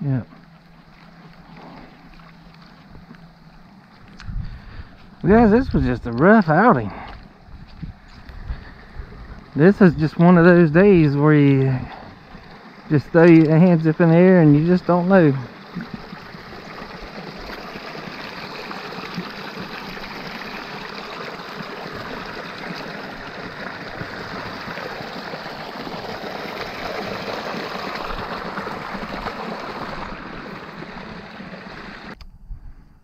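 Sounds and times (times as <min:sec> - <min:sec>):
rain on water and ground: 0:11.0 - 0:32.2.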